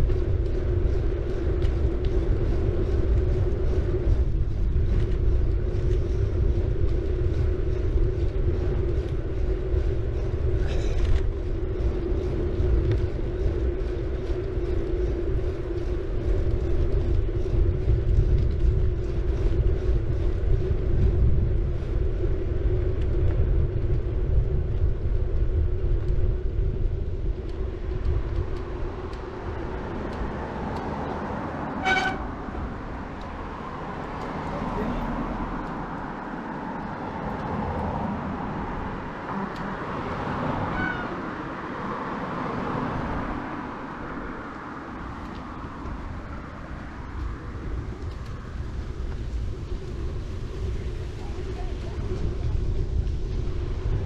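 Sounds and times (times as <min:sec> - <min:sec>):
bike tyre and wind noise: 0:00.0 - 0:54.0.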